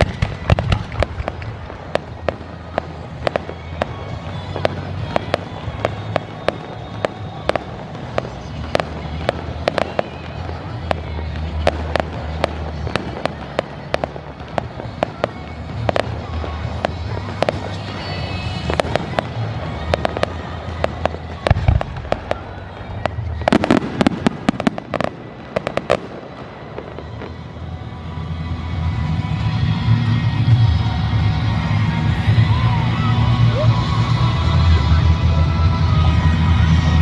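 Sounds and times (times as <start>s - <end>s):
deep firework boom: 0.0s - 27.5s
fireworks crackling pops: 0.0s - 37.0s.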